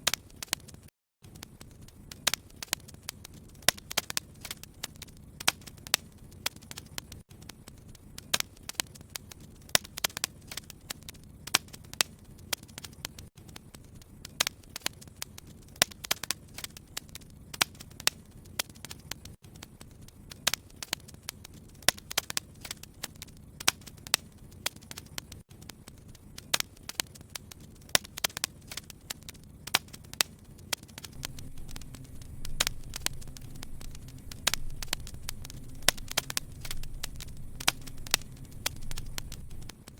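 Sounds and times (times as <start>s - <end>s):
wood fire crackling and popping: 0.0s - 39.9s
low hiss of flame: 13.8s - 39.9s.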